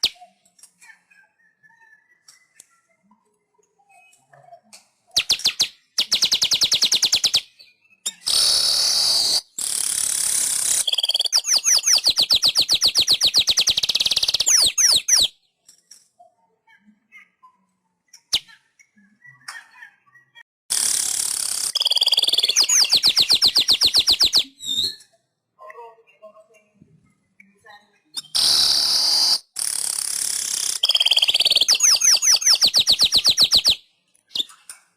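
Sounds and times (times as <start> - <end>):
weaver bird singing: 5.1 - 15.3, 21.6 - 25.1, 28.2 - 29.4, 30.4 - 34.6.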